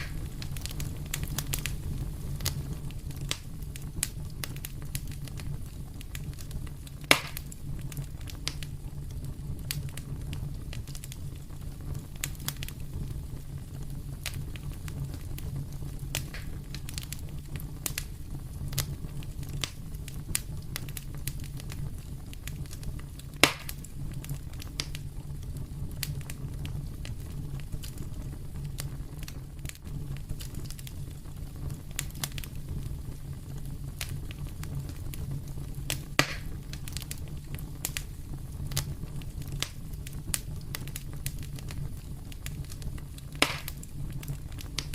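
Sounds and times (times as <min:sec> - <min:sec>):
fire crackling in a fireplace: 0:00.0 - 0:44.9
sharp loud pops: 0:07.1 - 0:07.4, 0:23.4 - 0:23.8, 0:36.2 - 0:36.6, 0:43.4 - 0:43.8.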